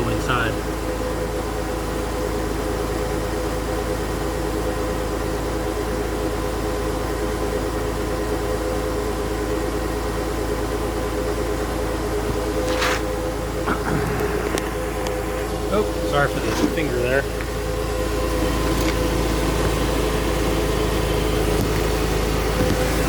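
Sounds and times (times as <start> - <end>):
car engine idling: 0.0 - 23.0
brief scuff: 12.3 - 13.1.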